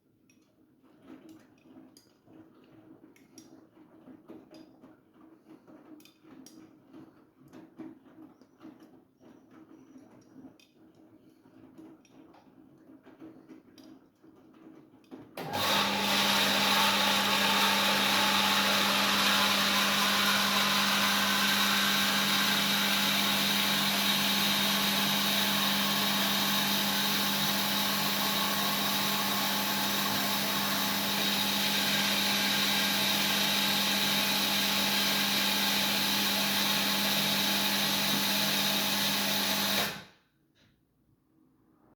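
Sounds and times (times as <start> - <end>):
washing machine running: 15.4 - 40.1.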